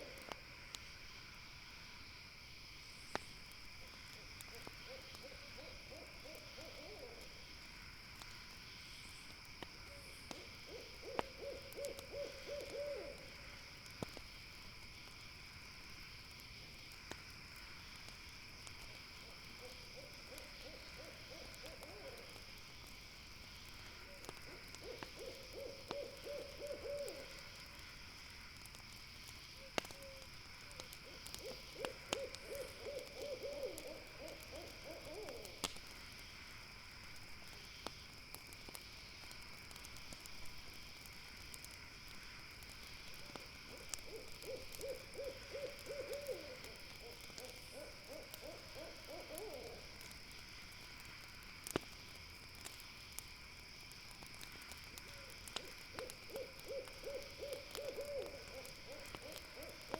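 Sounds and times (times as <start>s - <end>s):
campfire crackling and popping: 0.0s - 59.9s
high insect chorus: 0.0s - 59.9s
owl trilled call: 10.7s - 13.2s.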